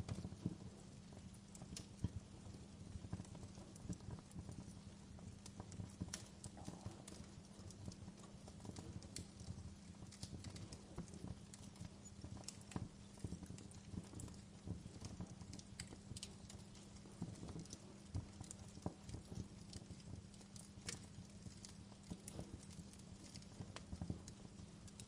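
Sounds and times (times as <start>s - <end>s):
low fire rumble: 0.0s - 25.0s
wood fire crackling: 0.0s - 25.0s.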